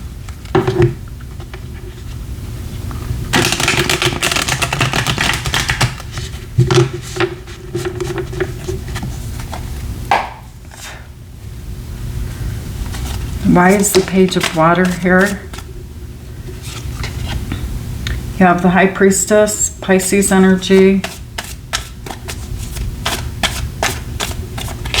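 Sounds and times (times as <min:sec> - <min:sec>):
cards tapping: 0:03.3 - 0:10.5, 0:12.9 - 0:15.7, 0:20.8 - 0:25.0
cards being shuffled: 0:03.3 - 0:11.0, 0:12.8 - 0:15.7, 0:20.7 - 0:25.0.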